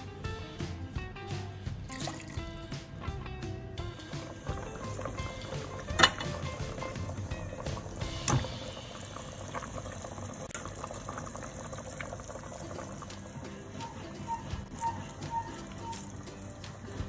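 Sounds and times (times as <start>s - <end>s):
liquid bubbling in a cooking pot: 3.9s - 17.0s.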